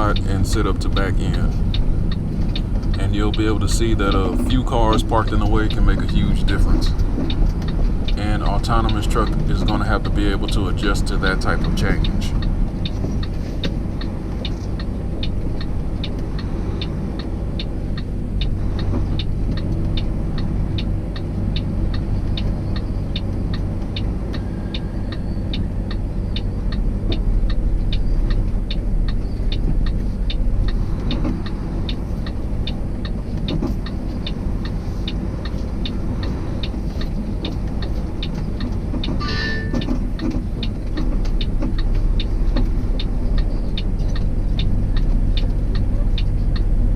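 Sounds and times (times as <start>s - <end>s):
truck engine running: 0.0s - 46.9s
short high-pitched sound: 39.2s - 39.8s.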